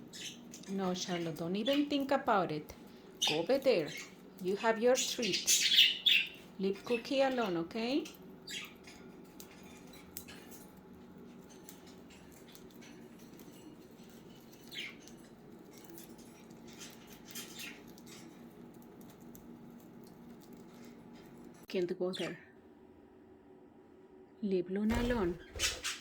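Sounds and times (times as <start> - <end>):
budgies chirping: 0.0 - 2.2, 3.2 - 10.7, 11.6 - 18.6
budgies clicking and scratching: 0.0 - 22.3, 24.9 - 26.0.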